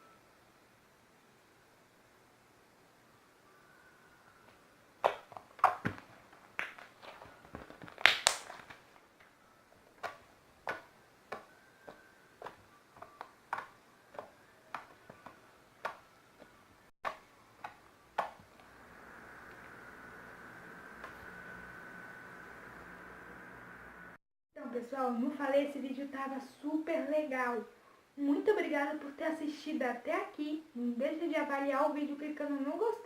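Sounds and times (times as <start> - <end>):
slime squeezed with wet pops: 5.0 - 5.9, 7.8 - 8.8.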